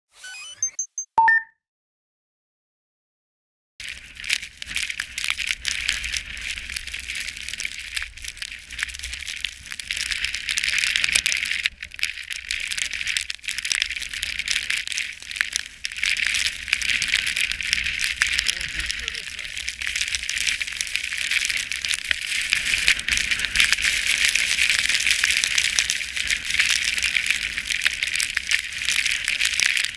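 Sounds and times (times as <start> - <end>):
skis scraping over snow: 3.9 - 11.7.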